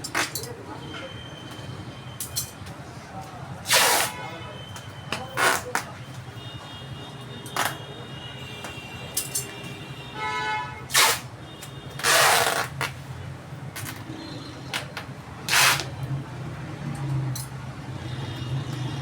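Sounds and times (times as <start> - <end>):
loud rasping packing bursts: 3.6 - 4.2, 5.2 - 5.9, 10.9 - 13.1, 14.7 - 16.0.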